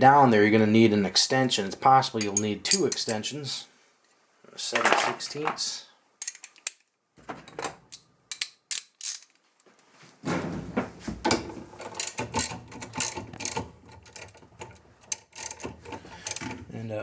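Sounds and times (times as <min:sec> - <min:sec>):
metal clicks: 0:06.2 - 0:06.9, 0:11.3 - 0:16.6
socket wrench ratcheting: 0:07.9 - 0:09.3, 0:12.0 - 0:14.4, 0:15.1 - 0:16.5.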